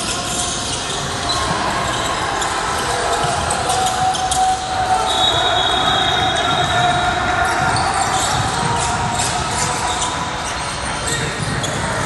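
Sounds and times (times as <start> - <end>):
echoing crowd noise in hall: 0.0 - 12.0
basketball dribbling on gym floor: 10.8 - 12.0.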